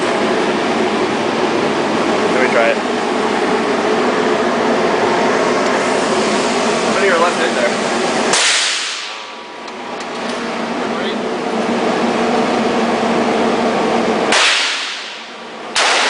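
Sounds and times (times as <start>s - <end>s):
rifle shot crack: 15.8s - 16.0s.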